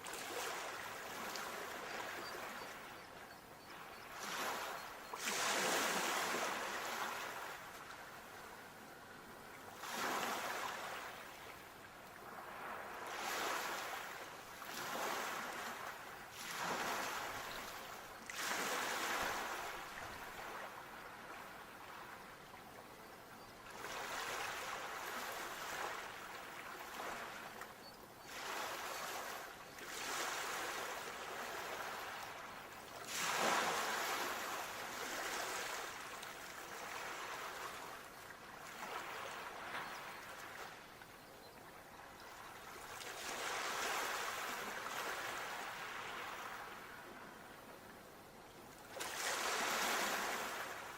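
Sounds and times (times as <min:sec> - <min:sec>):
sea waves washing onto shore: 0:29.9 - 0:37.9.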